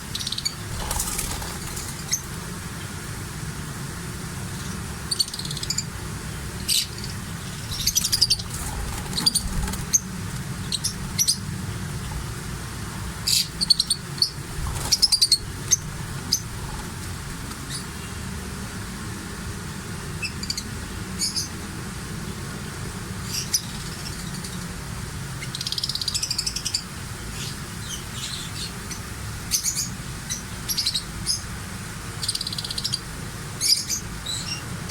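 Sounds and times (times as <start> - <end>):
small birds chirping: 0.0 - 3.0, 4.6 - 12.4, 13.1 - 18.2, 20.2 - 21.6, 23.2 - 31.5, 32.1 - 34.9
steady low hum: 0.0 - 25.3.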